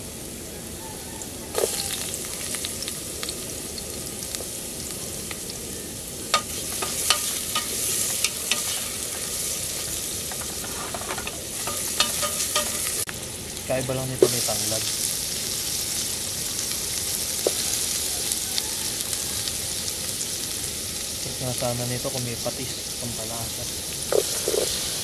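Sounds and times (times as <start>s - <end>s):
aromatics sizzling in hot oil: 0.0s - 25.0s
wooden spatula tapping and scraping pot: 10.3s - 12.9s.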